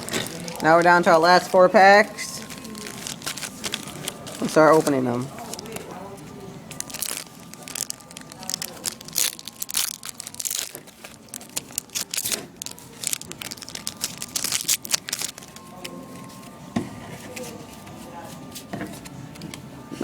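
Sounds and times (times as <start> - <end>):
foil packs tearing and crinkling: 0.0 - 1.2, 2.4 - 5.8, 6.7 - 15.9.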